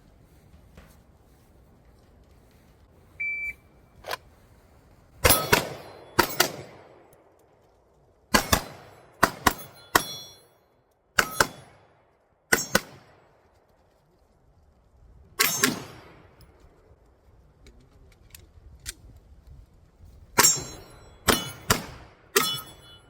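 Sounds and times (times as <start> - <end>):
shot timer beep: 3.2 - 3.6
bullets ringing on steel: 5.2 - 6.8, 8.4 - 11.8, 12.5 - 13.0, 15.4 - 16.1, 20.4 - 23.0
pistol shots: 5.2 - 7.1, 8.3 - 10.4, 11.2 - 11.8, 12.5 - 13.2, 15.4 - 16.2, 20.4 - 22.6.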